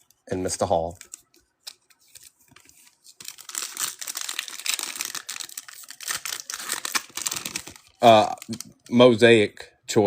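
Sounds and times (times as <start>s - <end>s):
cards being handled: 0.9s - 8.8s
foil wrapper tearing and crinkling: 1.0s - 8.6s.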